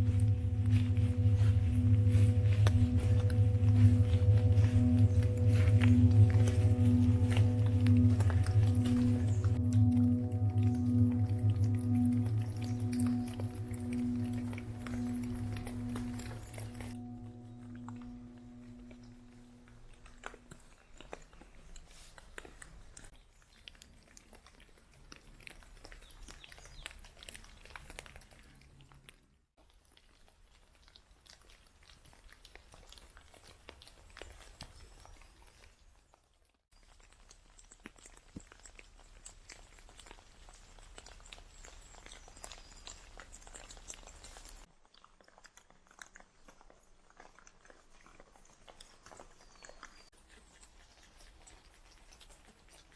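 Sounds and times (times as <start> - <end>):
faint crunching: 0.0 - 52.9.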